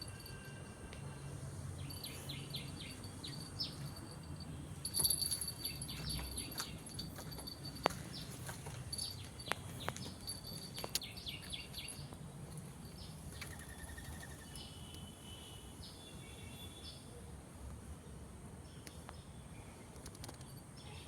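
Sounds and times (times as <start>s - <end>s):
small birds chirping: 1.7s - 15.0s.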